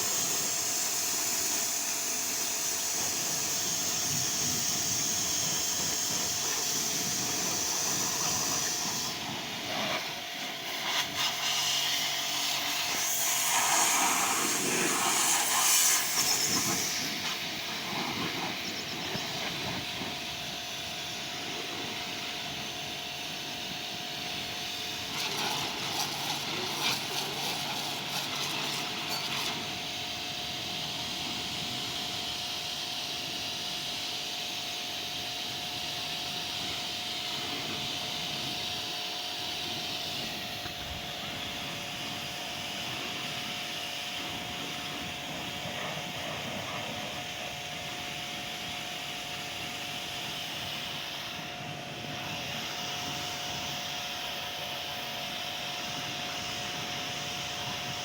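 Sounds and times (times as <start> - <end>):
car wash machinery hiss and whine: 0.0 - 58.0.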